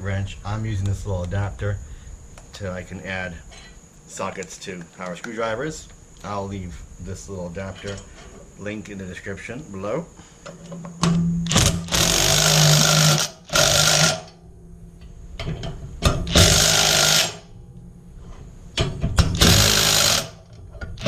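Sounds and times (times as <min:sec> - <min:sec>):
impact driver bursts: 0:11.5 - 0:14.4, 0:16.2 - 0:17.5, 0:19.3 - 0:20.5.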